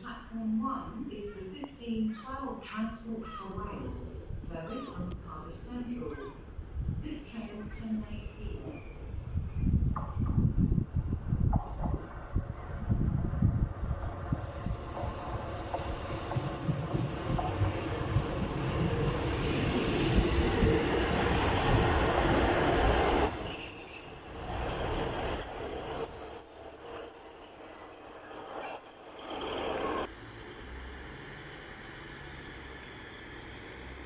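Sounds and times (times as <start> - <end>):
train rumble: 3.6 - 34.0
wheel and brake squeal: 13.8 - 18.7, 23.2 - 30.1.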